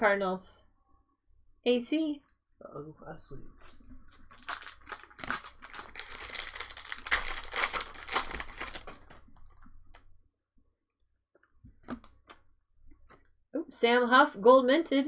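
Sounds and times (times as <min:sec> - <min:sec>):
card pack wrapper crinkling: 0:04.1 - 0:09.3.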